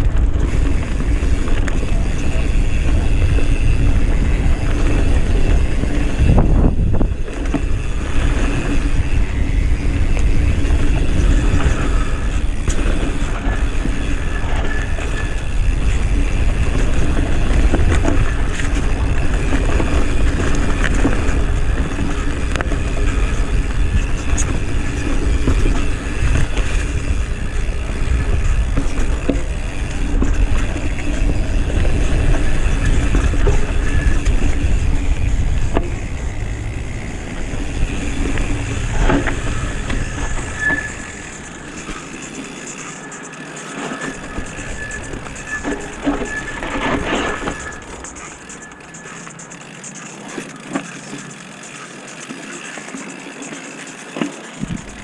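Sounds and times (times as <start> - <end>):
wind rumble on microphone: 0.0 - 42.6, 54.6 - 55.0.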